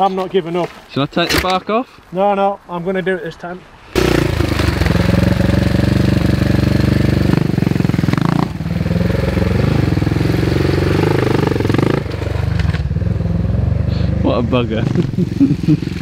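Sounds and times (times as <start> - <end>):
dirt bike engine revving: 4.0 - 16.0.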